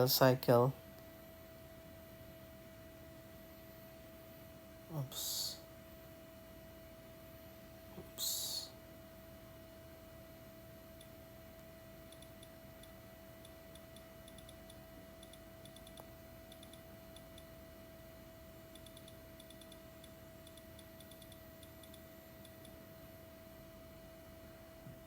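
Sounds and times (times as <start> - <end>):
steady low hum: 0.0 - 25.0
faint ticking clicks: 11.0 - 17.6, 18.7 - 22.8.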